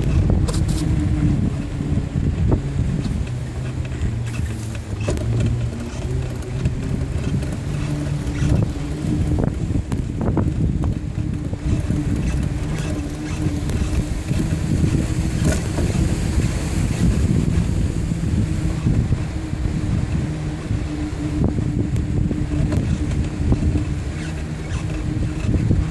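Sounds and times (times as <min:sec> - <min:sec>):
bicycle clicks and rattles: 0:00.0 - 0:01.0, 0:02.4 - 0:16.2
tyres rolling on path: 0:00.0 - 0:25.9
wind on microphone: 0:00.0 - 0:25.9.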